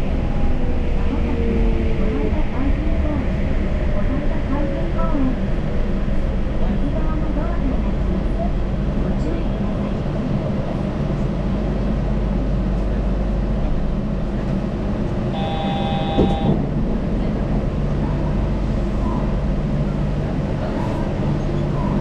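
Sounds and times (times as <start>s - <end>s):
train rumbling from inside: 0.0s - 22.0s
steady electronic tone: 15.4s - 16.6s.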